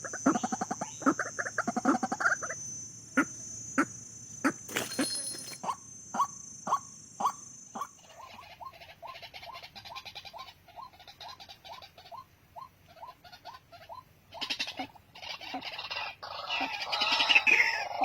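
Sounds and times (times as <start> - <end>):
rustling or scratching: 4.7 - 5.6.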